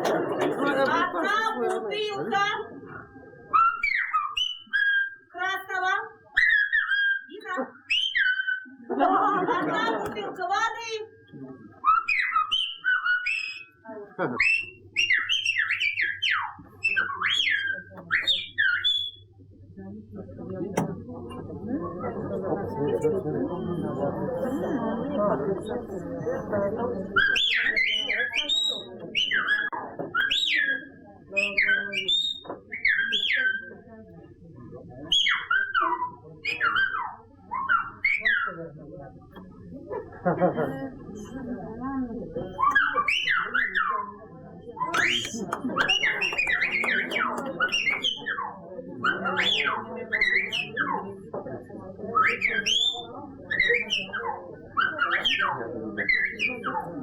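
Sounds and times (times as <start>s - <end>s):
bird whistling and chirping: 3.5s - 5.2s, 6.4s - 7.3s, 7.9s - 8.7s, 11.8s - 13.7s, 14.4s - 19.2s, 45.0s - 48.3s.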